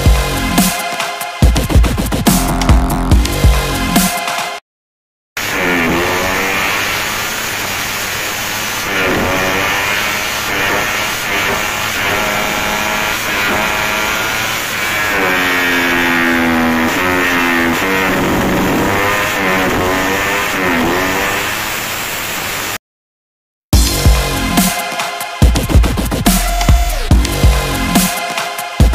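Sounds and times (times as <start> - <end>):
electronic dance music: 0.0 - 4.6, 23.8 - 28.9
motorcycle engine revving: 1.8 - 4.1, 5.4 - 22.6.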